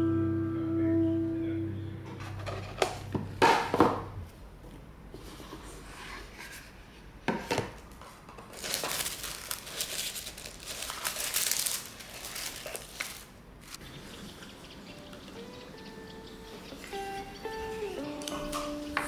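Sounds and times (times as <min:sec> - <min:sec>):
packaging crinkling: 0:08.3 - 0:13.8.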